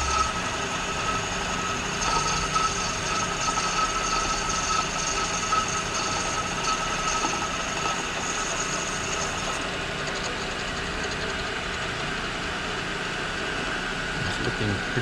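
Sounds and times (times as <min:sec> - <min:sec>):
high whine: 0:00.0 - 0:09.6
machine spindle humming: 0:00.0 - 0:12.5.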